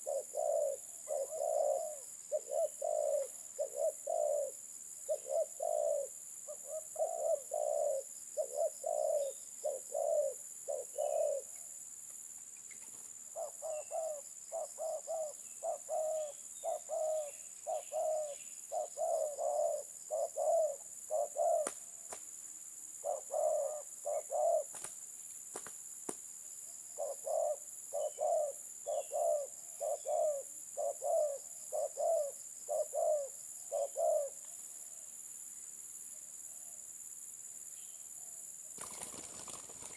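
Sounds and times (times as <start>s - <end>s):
dove cooing: 0.0s - 11.6s, 13.3s - 21.9s, 23.0s - 24.9s, 27.0s - 34.5s.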